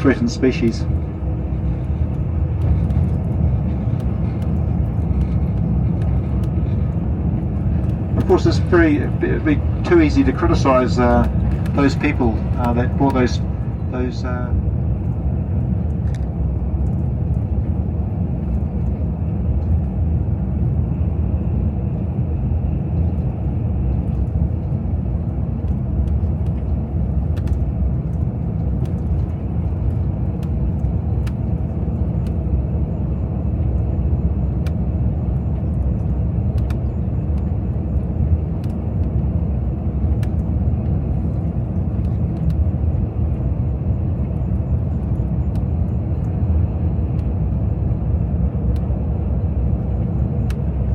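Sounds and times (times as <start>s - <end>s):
coach engine and road noise: 0.0s - 50.9s
faint ticks: 35.6s - 37.5s.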